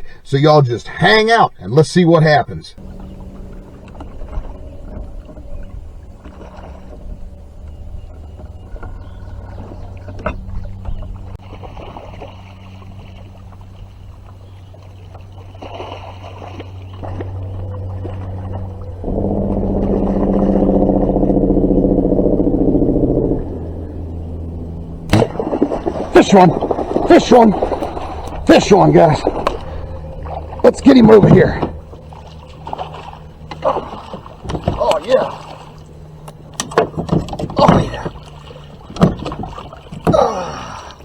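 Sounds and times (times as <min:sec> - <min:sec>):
motor humming: 0:02.8 - 0:11.4, 0:16.6 - 0:35.0.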